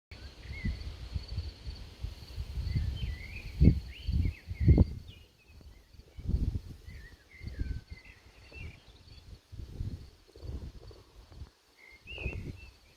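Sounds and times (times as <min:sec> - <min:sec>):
wind rumble on microphone: 0:00.1 - 0:12.9
birds chirping: 0:02.6 - 0:09.5, 0:11.7 - 0:12.9.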